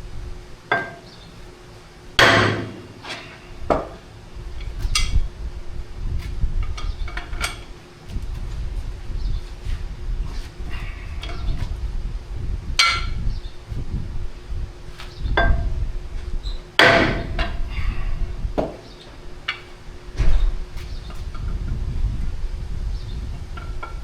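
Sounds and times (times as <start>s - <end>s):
hammer striking steel: 2.2s - 4.0s, 16.8s - 17.6s.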